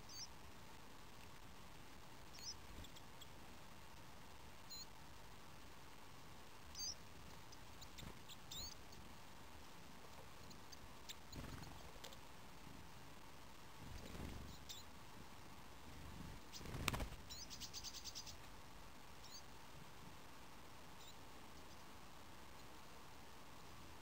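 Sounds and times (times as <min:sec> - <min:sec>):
faint ticks: 0:01.1 - 0:03.3, 0:06.7 - 0:12.3.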